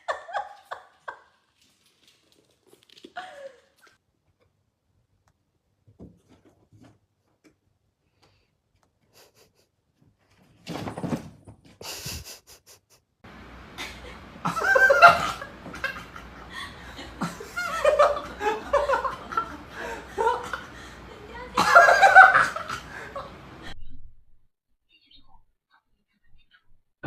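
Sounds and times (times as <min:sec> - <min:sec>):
people laughing: 0:13.8 - 0:23.7.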